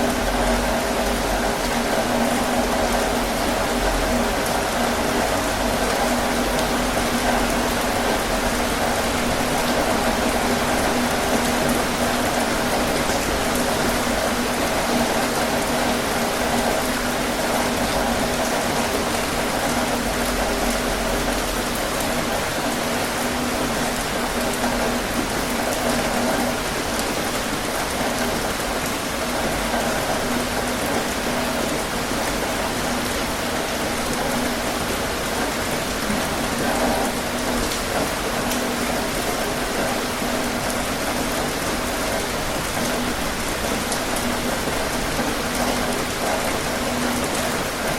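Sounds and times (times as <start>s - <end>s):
heavy rain on a tin roof: 0.0s - 47.9s.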